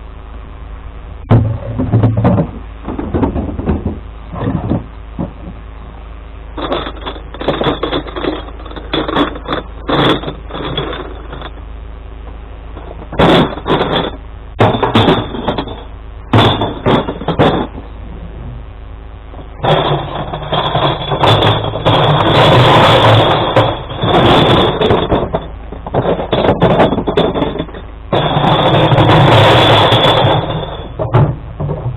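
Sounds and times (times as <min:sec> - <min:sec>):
truck engine running: 0:00.0 - 0:31.9
glass bottles crashing: 0:06.6 - 0:11.5, 0:12.8 - 0:17.8, 0:19.6 - 0:31.9.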